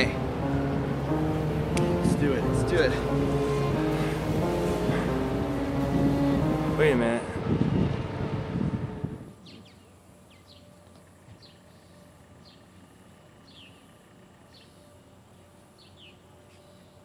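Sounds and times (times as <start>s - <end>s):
faint bird chirps: 9.4s - 17.0s.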